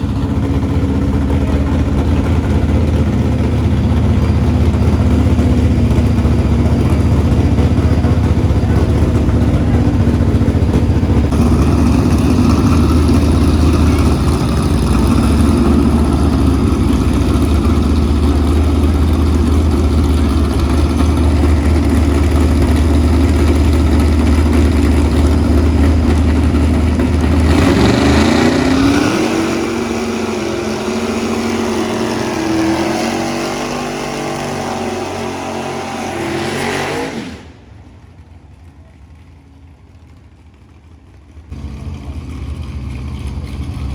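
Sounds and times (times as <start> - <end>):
car engines running loudly: 0.0 - 43.9
engine revving up: 11.3 - 37.7.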